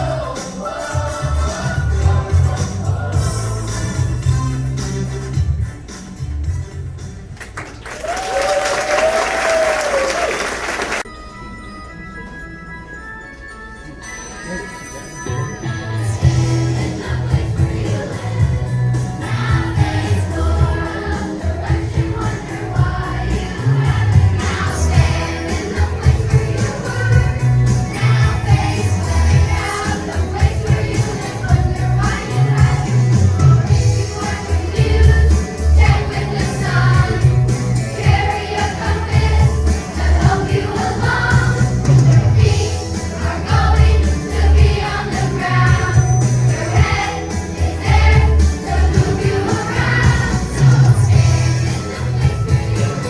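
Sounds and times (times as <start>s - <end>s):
children's choir singing: 0.0s - 4.3s, 15.6s - 53.0s
musical accompaniment with bass: 0.0s - 8.2s, 15.2s - 53.0s.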